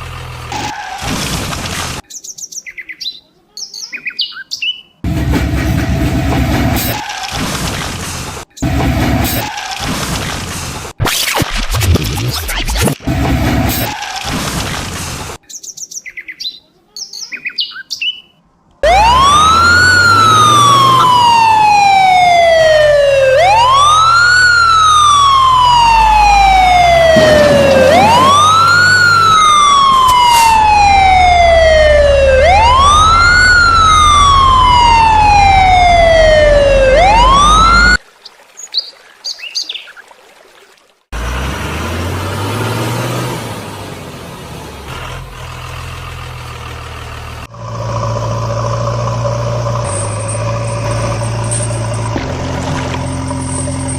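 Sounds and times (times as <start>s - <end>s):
vehicle engine: 0.0s - 2.0s, 5.0s - 11.0s, 11.8s - 15.4s, 18.5s - 38.0s, 41.1s - 53.9s
electronic siren wailing: 18.8s - 38.0s.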